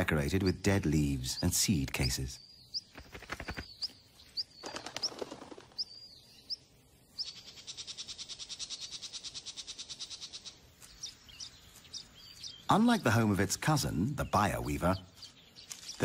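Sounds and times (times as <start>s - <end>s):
birds chirping: 0.0s - 16.0s
fast rattling bird trill: 1.3s - 6.6s, 7.2s - 13.0s.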